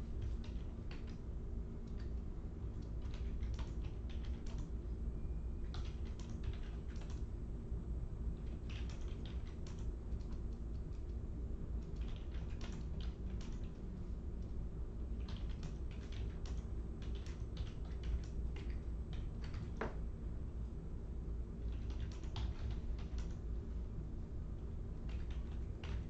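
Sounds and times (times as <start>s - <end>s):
low hum: 0.0s - 8.6s
typing on a keyboard: 0.1s - 1.2s, 1.9s - 4.7s, 5.6s - 7.3s, 8.4s - 11.2s, 11.8s - 13.8s, 15.2s - 20.0s, 21.6s - 23.4s, 25.0s - 26.0s.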